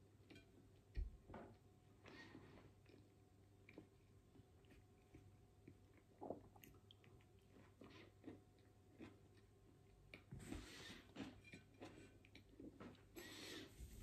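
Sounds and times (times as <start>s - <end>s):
person chewing sandwich: 2.0s - 10.3s.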